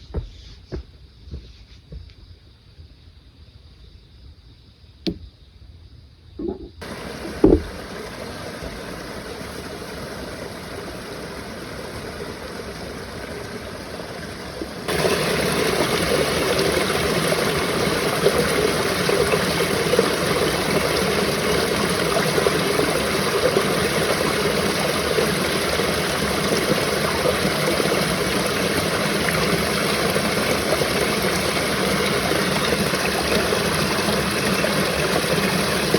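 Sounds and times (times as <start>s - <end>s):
short knocks: 6.4s - 7.8s
rushing water: 6.8s - 35.9s.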